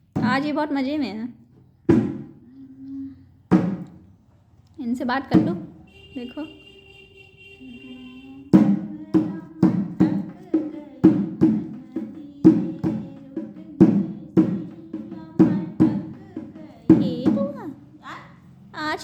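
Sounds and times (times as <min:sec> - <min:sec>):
low ringing drum beats: 0:08.6 - 0:17.8.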